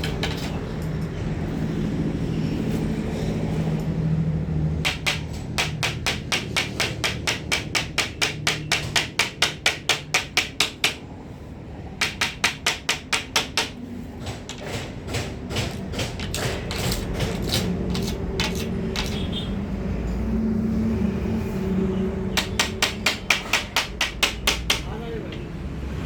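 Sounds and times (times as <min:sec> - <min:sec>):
hand tool tapping: 0:04.8 - 0:11.0, 0:12.0 - 0:19.3, 0:22.4 - 0:25.4.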